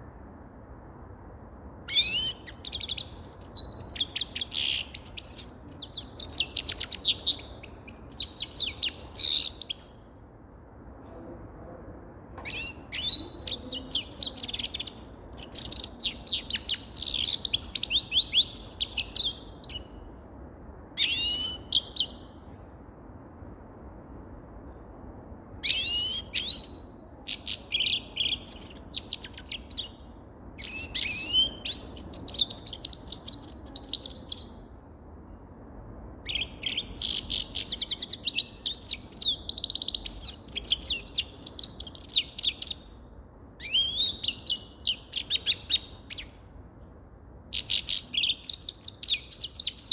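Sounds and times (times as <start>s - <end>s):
finch twittering and trilling: 1.9s - 9.9s, 12.5s - 19.9s, 30.6s - 34.6s, 36.3s - 42.9s, 43.6s - 46.3s, 47.6s - 49.9s.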